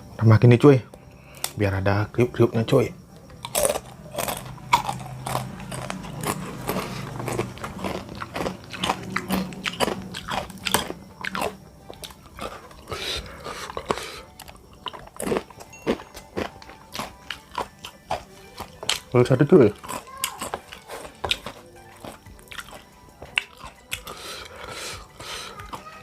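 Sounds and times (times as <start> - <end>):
person chewing with crunches: 3.2 - 26.0.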